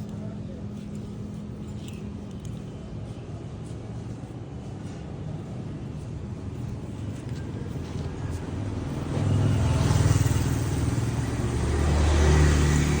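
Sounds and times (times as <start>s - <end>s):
passing vehicle engine: 8.4s - 13.0s.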